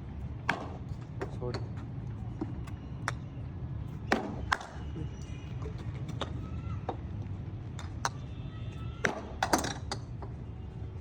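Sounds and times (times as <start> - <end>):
cricket ball striking bat: 4.1 - 4.8, 9.0 - 9.8.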